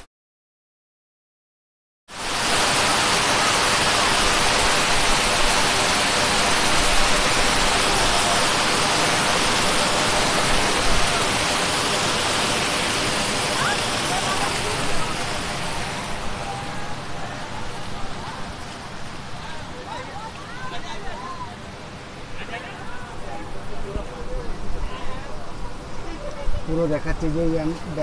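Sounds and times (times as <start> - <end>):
water pouring over a dam: 2.1 - 22.8.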